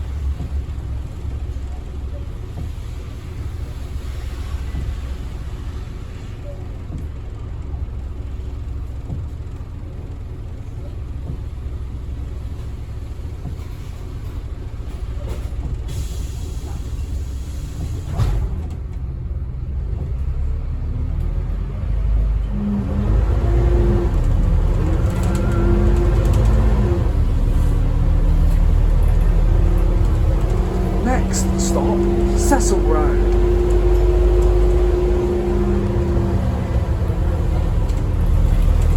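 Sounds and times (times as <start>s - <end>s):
bus engine and road rumble: 0.0s - 38.9s.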